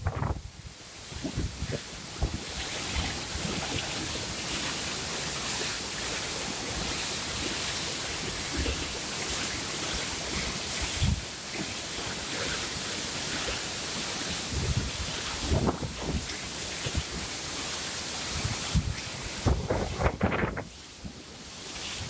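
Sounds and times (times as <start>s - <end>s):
wind buffeting microphone: 0.0s - 4.1s, 10.8s - 11.3s, 14.4s - 17.3s, 18.3s - 21.2s
water rushing and pouring: 0.0s - 22.0s.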